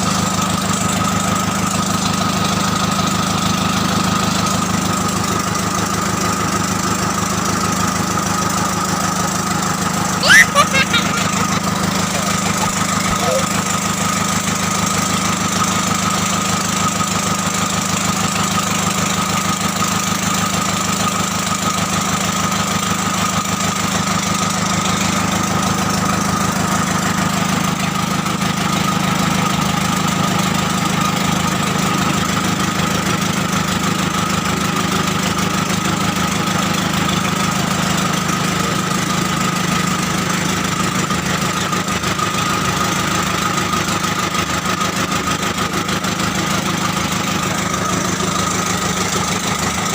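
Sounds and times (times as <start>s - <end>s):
diesel engine idling: 11.0s - 17.0s, 35.4s - 49.9s.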